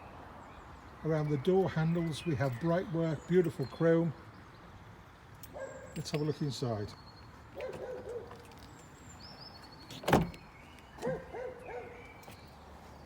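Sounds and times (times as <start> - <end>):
dog barking: 5.6 - 5.9, 7.6 - 8.3, 11.0 - 12.0
car door latch clunk: 9.9 - 10.4.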